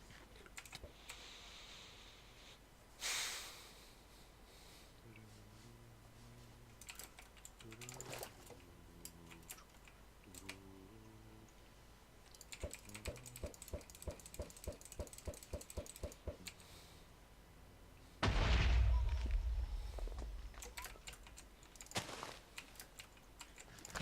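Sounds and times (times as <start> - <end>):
faint low hum: 0.0 - 24.0
sharp clicks: 12.2 - 16.7, 20.0 - 22.0.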